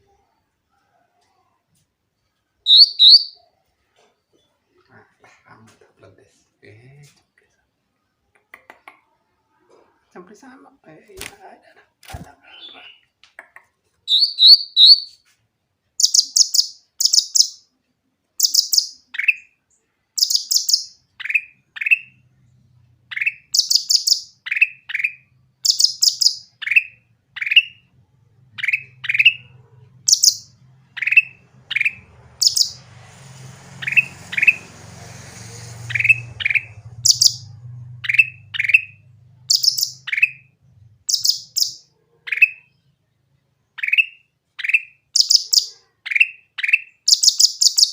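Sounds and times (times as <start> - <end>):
bird chirping and whistling: 2.7 - 3.4, 14.1 - 15.2, 16.0 - 17.6, 18.4 - 19.4, 20.2 - 22.1, 23.1 - 27.8, 28.6 - 29.5, 30.1 - 32.8, 33.8 - 34.7, 35.6 - 40.4, 41.1 - 42.6, 43.8 - 47.9.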